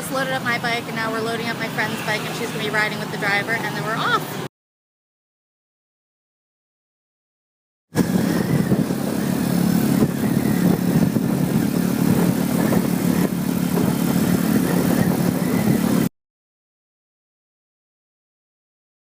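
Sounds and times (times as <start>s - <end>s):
motorcycle engine running: 8.0s - 16.1s.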